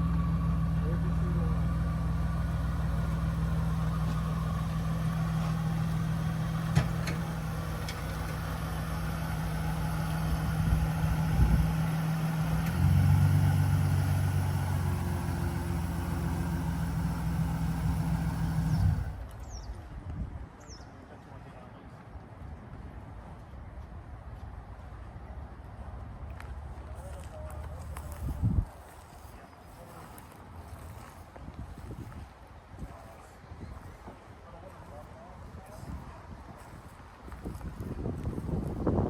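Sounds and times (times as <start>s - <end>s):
car engine idling: 0.0s - 19.3s.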